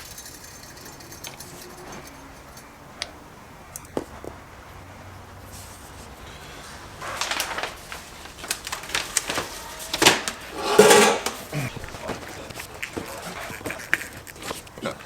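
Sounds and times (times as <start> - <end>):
rasping metal scrape: 10.5 - 11.7.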